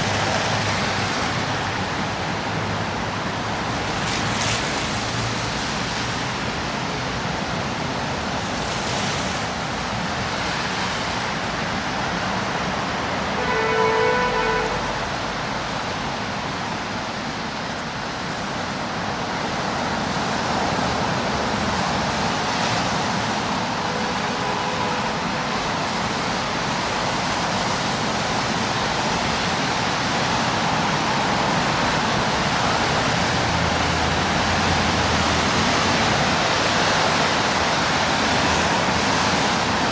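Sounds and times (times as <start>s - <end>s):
city street traffic: 0.0s - 39.9s.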